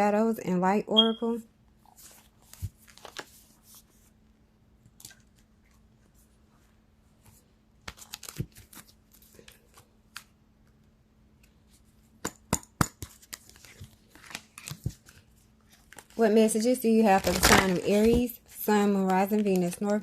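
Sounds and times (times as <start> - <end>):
cards being shuffled: 1.9 - 4.0, 7.2 - 10.4, 13.0 - 16.2, 17.1 - 20.0.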